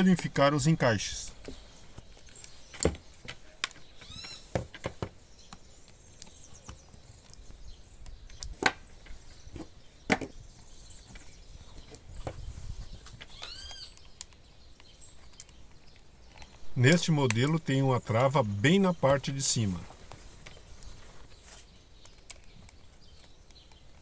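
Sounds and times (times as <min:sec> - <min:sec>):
high-pitched animal call: 0:13.3 - 0:14.0.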